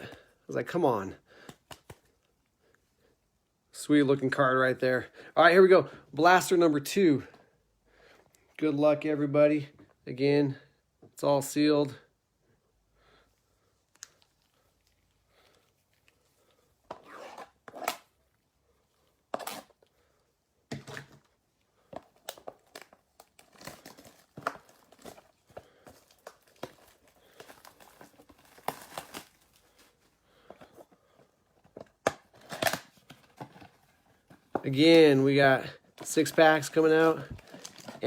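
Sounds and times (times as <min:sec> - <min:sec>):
shrink wrap tearing: 0:26.1 - 0:29.9, 0:32.3 - 0:33.1.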